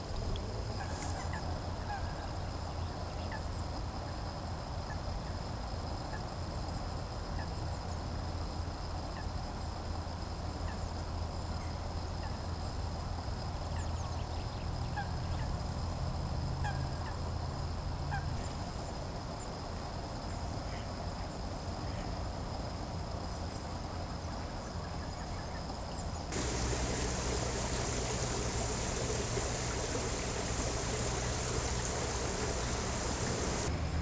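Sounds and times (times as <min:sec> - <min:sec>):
geese honking: 0:26.4 - 0:33.7.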